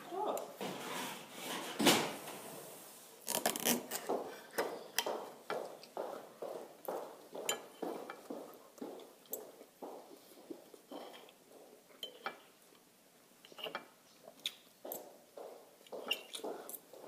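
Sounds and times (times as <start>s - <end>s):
person chewing food: 14.3s - 17.0s.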